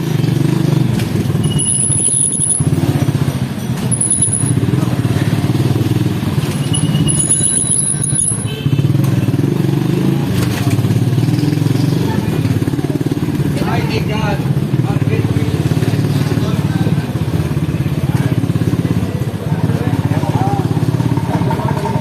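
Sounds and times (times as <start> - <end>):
small motorcycle engine running: 0.0 - 22.0
brief high-pitched squeals: 1.4 - 2.7, 6.6 - 8.5.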